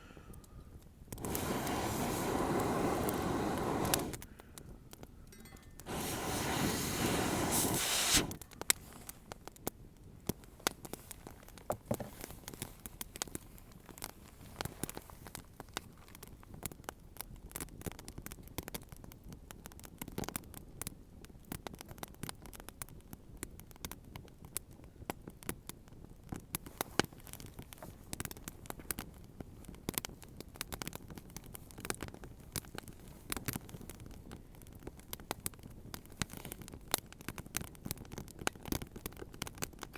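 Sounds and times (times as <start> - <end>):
campfire wood crackling: 0.1 - 39.9
rustling noise: 5.4 - 9.5, 10.3 - 16.6.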